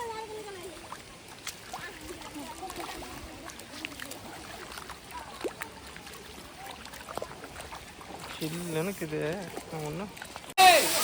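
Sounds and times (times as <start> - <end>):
waterfall rushing: 10.6 - 11.0.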